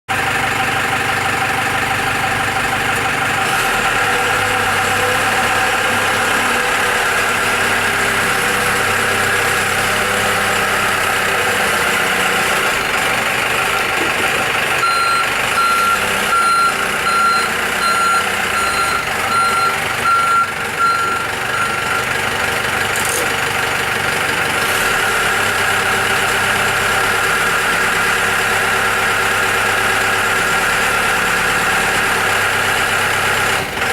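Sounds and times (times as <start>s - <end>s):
diesel forklift engine running: 0.1s - 33.9s
reversing alarm beeps: 14.8s - 22.2s.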